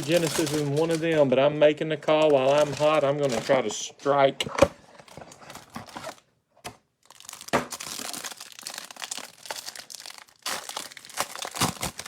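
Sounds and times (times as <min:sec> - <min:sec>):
plastic wrapper crinkling: 0:00.0 - 0:03.9, 0:07.0 - 0:12.0.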